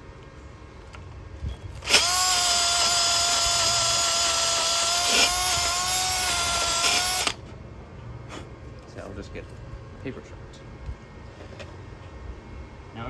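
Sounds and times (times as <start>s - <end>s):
power drill drilling into metal: 1.8s - 7.4s.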